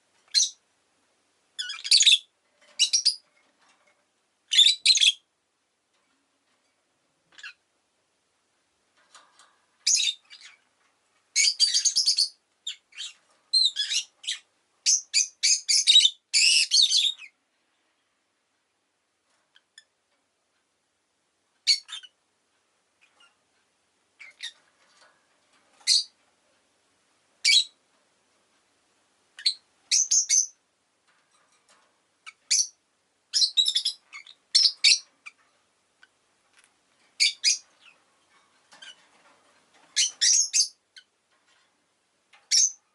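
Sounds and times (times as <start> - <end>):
lovebird chirping: 0.3 - 0.6, 1.6 - 3.3, 4.5 - 5.3, 7.3 - 7.6, 9.8 - 10.6, 11.3 - 17.4, 21.6 - 22.2, 24.2 - 24.6, 25.8 - 26.1, 27.4 - 27.8, 29.4 - 30.6, 32.2 - 35.4, 37.2 - 38.0, 40.0 - 41.1, 42.5 - 42.8.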